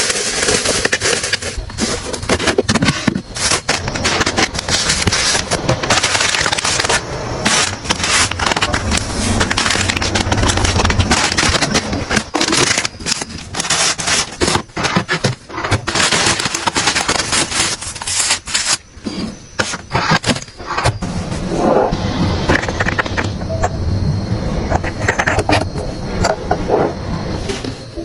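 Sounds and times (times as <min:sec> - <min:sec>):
plastic packaging crinkling: 0:00.0 - 0:18.9.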